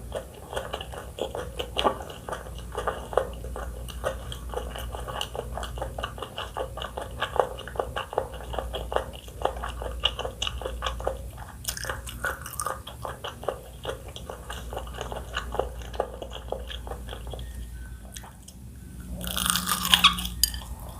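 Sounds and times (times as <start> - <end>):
chewing crunchy food: 0.0 - 20.9.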